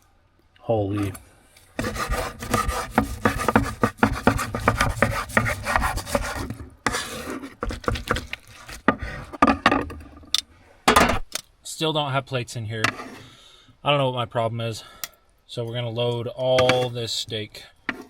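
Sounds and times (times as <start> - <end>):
knife sawing through steak: 1.8 - 9.3.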